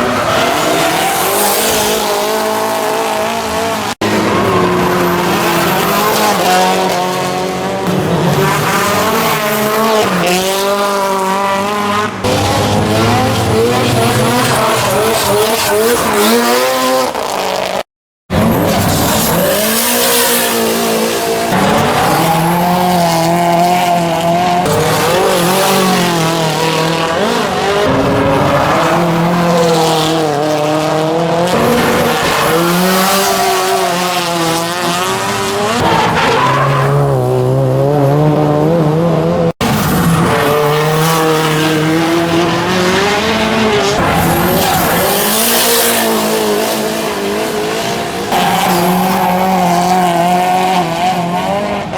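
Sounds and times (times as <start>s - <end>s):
car engines revving hard: 0.0s - 51.9s.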